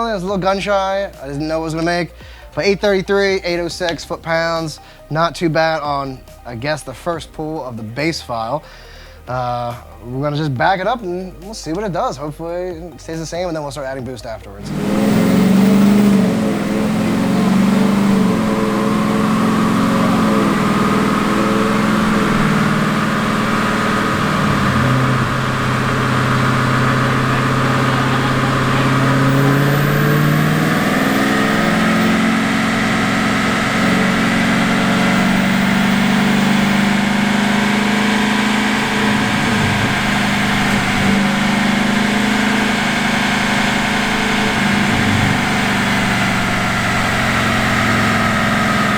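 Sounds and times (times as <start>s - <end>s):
truck engine running: 14.6s - 48.9s.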